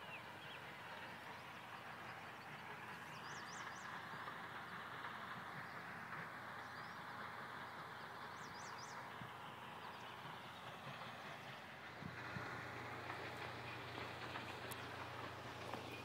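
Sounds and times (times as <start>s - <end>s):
songbird chirping: 0.0s - 4.9s, 6.5s - 11.8s, 12.4s - 16.0s.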